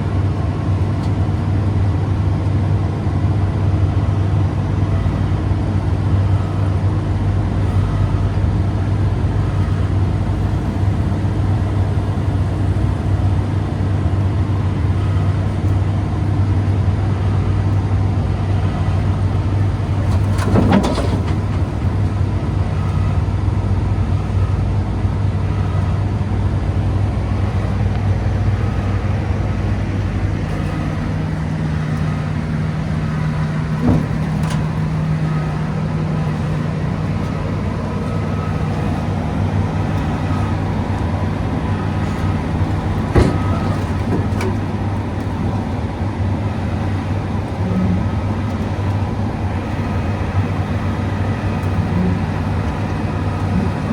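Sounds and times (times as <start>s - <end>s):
diesel engine running: 0.0s - 53.9s
short metallic knocks: 19.8s - 22.2s, 30.4s - 45.8s.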